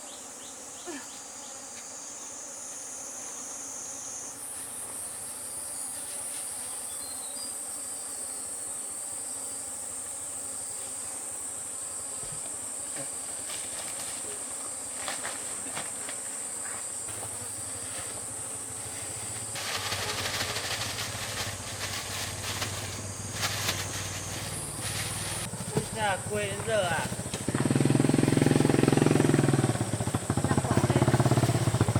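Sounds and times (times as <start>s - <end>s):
insects chirring: 0.0s - 31.9s
rustling: 13.0s - 26.8s.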